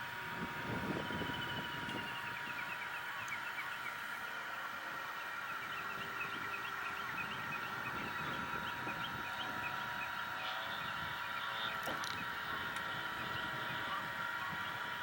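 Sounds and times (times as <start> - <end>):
wind rumbling on microphone: 0.0 - 2.8, 5.9 - 15.0
model airplane motor whine: 0.0 - 15.0.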